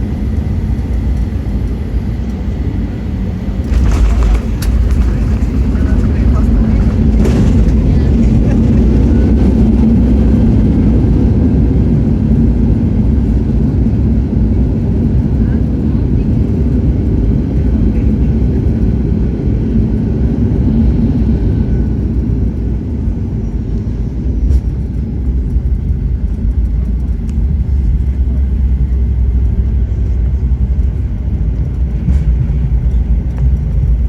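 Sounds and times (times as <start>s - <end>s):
aircraft engine rumble in cabin: 0.0s - 34.0s.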